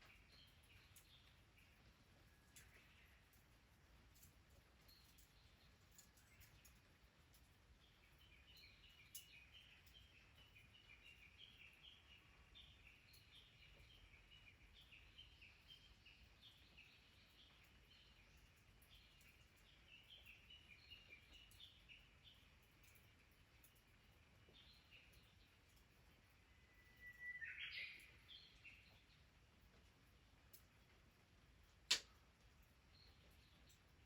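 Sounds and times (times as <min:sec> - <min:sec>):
small birds chirping: 0:00.0 - 0:34.0
clicks: 0:31.9 - 0:32.1.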